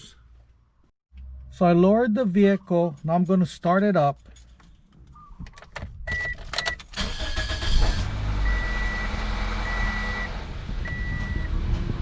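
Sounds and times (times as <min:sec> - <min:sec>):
car engine cranking and idling: 0:03.4 - 0:12.0
car warning chime beeping: 0:08.4 - 0:11.5.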